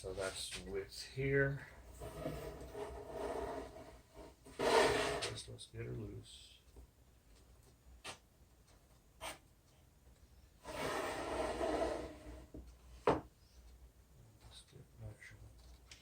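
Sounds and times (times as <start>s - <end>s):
scraping rub: 1.9s - 5.4s, 10.6s - 12.5s.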